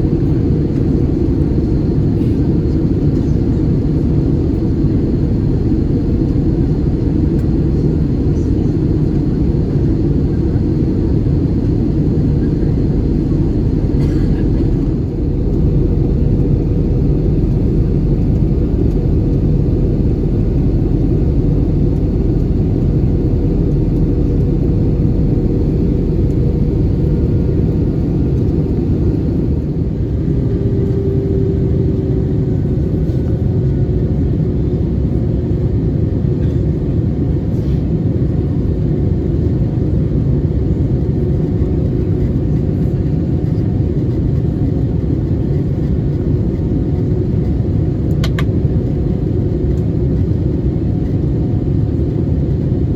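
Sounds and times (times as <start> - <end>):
aircraft cabin rumble: 0.0 - 52.9.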